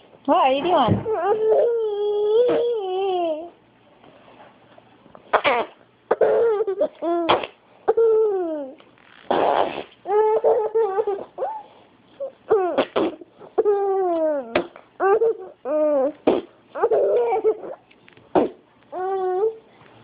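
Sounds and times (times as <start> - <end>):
baby laughing: 12.5 - 17.8.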